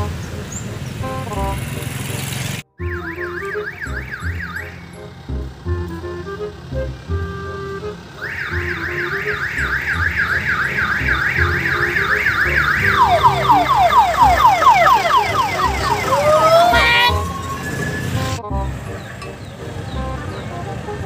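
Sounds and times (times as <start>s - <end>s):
electronic warbling siren: 2.8s - 4.9s, 8.2s - 18.4s.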